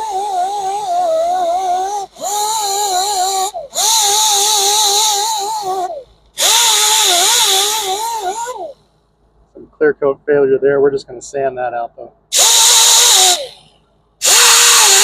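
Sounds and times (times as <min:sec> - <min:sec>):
power grinder whining on metal: 0:00.0 - 0:08.7, 0:14.2 - 0:15.0.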